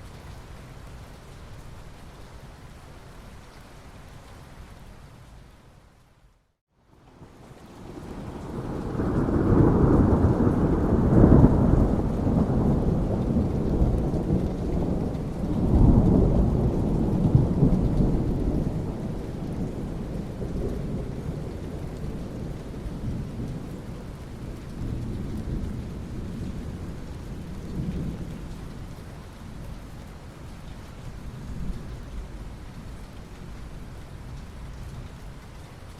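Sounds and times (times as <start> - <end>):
steady rain: 0.0 - 35.9
thunder rumbling: 7.8 - 28.7.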